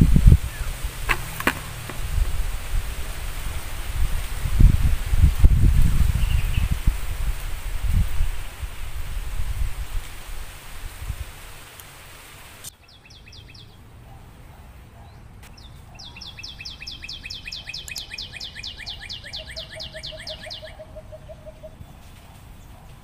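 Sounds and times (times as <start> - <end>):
songbird singing repeated notes: 0.0 - 2.5, 6.0 - 7.0, 12.7 - 14.4, 15.0 - 23.0
low wind rumble: 0.0 - 22.6.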